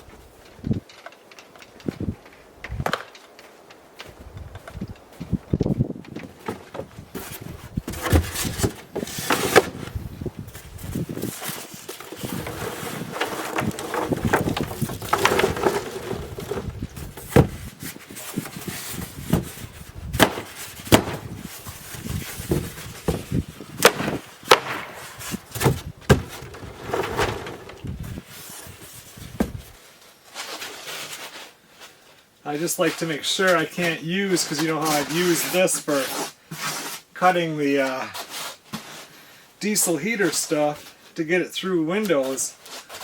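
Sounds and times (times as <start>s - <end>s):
rustling and scraping: 0.0s - 41.3s, 41.9s - 43.0s
objects knocking and clacking: 12.0s - 17.5s.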